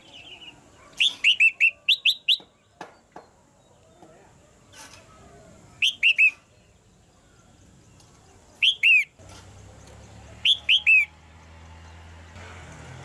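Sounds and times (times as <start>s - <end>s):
bird calling whistled notes: 0.3s - 2.6s, 5.8s - 6.5s, 8.6s - 9.2s, 10.4s - 11.1s.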